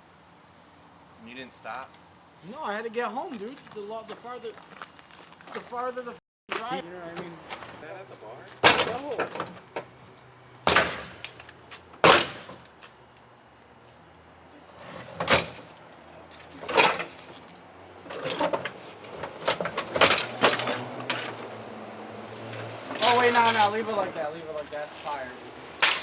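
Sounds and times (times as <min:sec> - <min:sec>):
sharp knocks and clunks: 0:08.5 - 0:13.0, 0:15.0 - 0:25.2.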